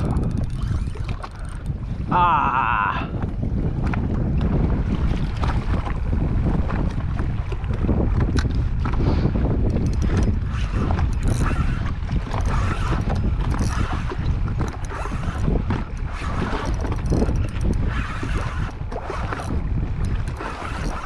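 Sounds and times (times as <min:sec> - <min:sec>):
water slapping against jet ski: 0:00.0 - 0:21.0
wind buffeting microphone: 0:00.0 - 0:21.0.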